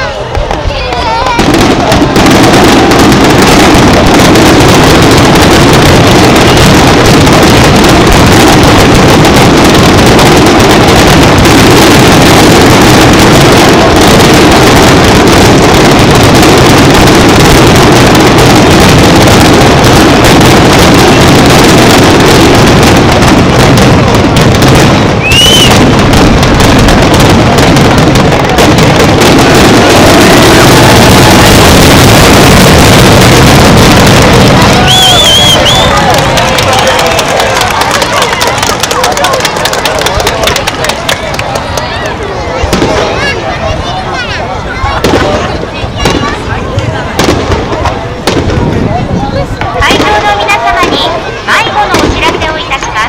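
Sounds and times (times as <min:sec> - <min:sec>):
fireworks bursting: 0:00.0 - 0:53.0
high firework whistle: 0:25.0 - 0:26.7, 0:30.0 - 0:39.0.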